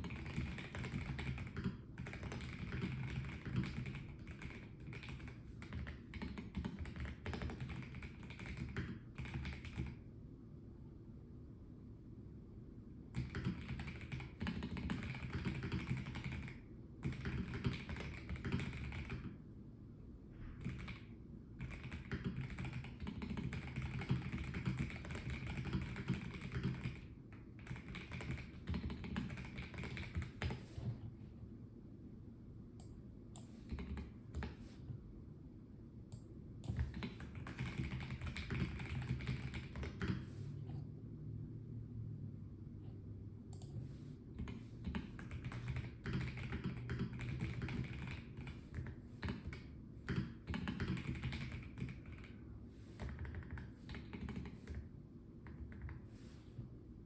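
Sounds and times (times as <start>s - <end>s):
mechanical keyboard typing: 0.0s - 10.0s, 13.2s - 19.4s, 20.6s - 30.7s, 33.4s - 34.6s, 36.6s - 40.2s, 44.4s - 52.4s, 53.0s - 54.8s.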